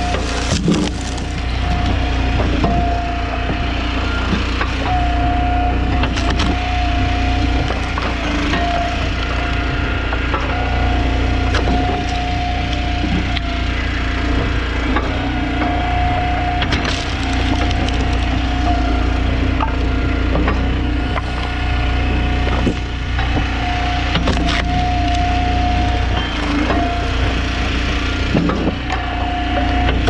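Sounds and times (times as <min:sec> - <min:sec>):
wood splitting cracks: 0:00.0 - 0:02.7, 0:06.0 - 0:09.6, 0:16.6 - 0:18.9, 0:20.4 - 0:25.4
hydraulic whine: 0:00.0 - 0:30.0
log splitter engine drone: 0:00.0 - 0:30.0.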